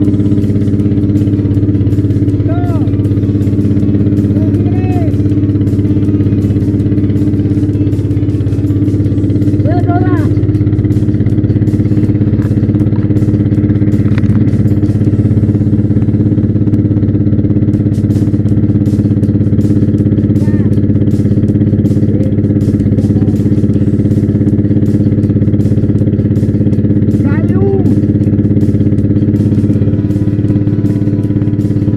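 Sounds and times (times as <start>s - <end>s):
motorboat engine running: 0.0s - 31.9s.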